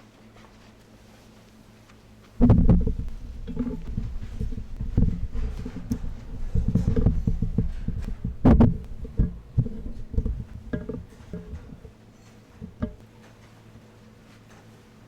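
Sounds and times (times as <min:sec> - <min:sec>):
faint steady hum: 0:00.0 - 0:15.0
low thumps and knocks: 0:02.4 - 0:13.1.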